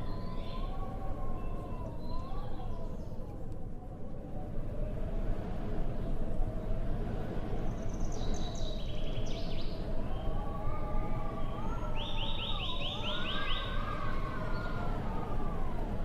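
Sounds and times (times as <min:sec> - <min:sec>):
small birds chirping: 0:00.0 - 0:03.4, 0:07.5 - 0:10.5, 0:11.4 - 0:14.8
low wind rumble: 0:00.0 - 0:16.0
bird trill: 0:12.0 - 0:13.9.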